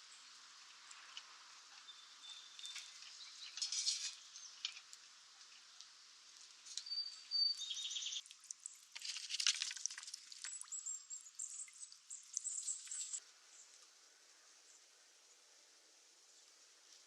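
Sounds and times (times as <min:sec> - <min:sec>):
thin whistled animal call: 0:06.8 - 0:08.2.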